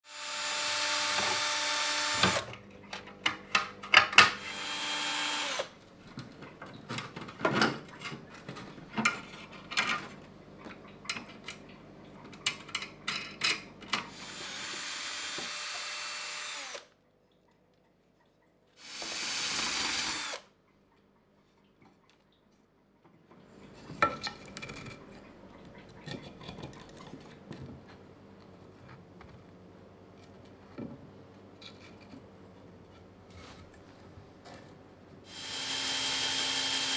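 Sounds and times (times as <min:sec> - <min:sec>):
power drill running: 0:00.0 - 0:02.5, 0:04.4 - 0:05.8, 0:14.1 - 0:16.9, 0:18.8 - 0:20.5, 0:35.3 - 0:36.9.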